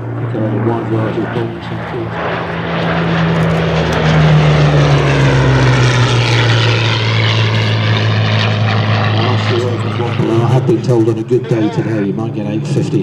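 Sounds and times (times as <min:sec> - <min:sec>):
propeller aircraft engine drone: 0:00.0 - 0:13.0.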